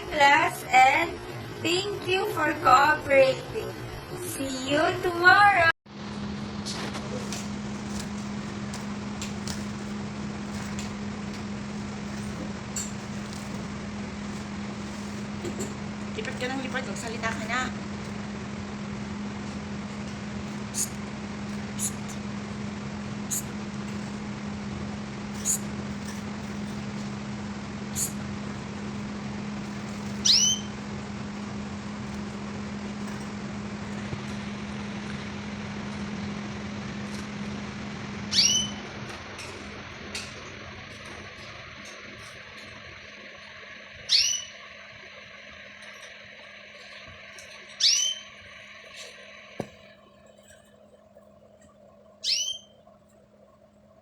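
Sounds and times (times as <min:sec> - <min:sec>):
low electrical hum: 0:00.0 - 0:54.0
pet bird chirping: 0:20.5 - 0:21.0, 0:21.6 - 0:22.2, 0:23.3 - 0:23.6, 0:25.3 - 0:26.8, 0:27.9 - 0:28.2, 0:29.9 - 0:30.9, 0:38.3 - 0:38.8, 0:44.0 - 0:44.7, 0:47.6 - 0:49.4, 0:52.2 - 0:52.9.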